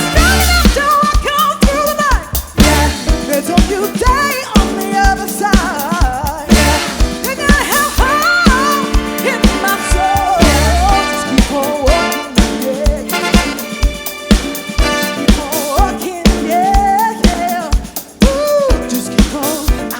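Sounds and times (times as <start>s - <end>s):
disco-funk band music: 0.0s - 19.9s
steady drum beat: 0.0s - 19.9s.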